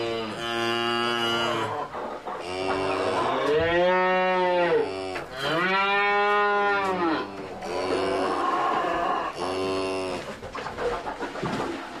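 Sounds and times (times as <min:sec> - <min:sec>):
cow mooing: 0:02.4 - 0:10.2.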